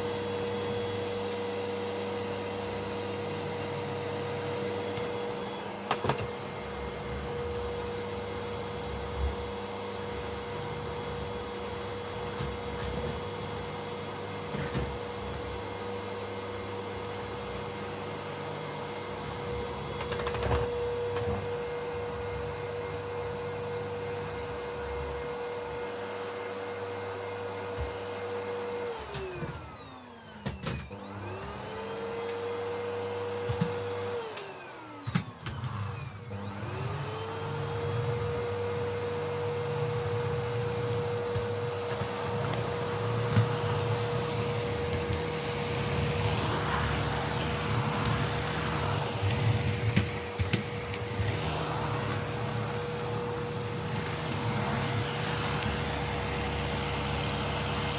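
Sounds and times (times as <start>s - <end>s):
vacuum cleaner motor whine: 0.0s - 57.9s.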